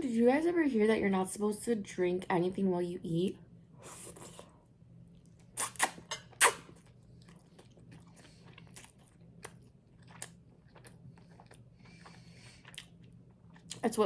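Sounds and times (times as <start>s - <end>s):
chewing clicks: 7.2s - 13.8s.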